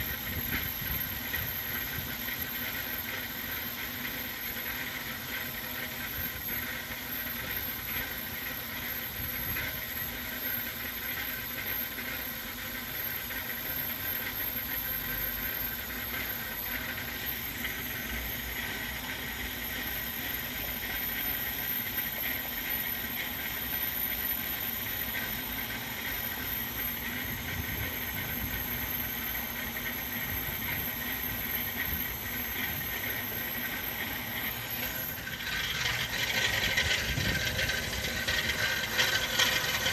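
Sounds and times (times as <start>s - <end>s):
high-pitched squealing whine: 0.0s - 39.9s
car engine idling roughly: 25.5s - 39.9s.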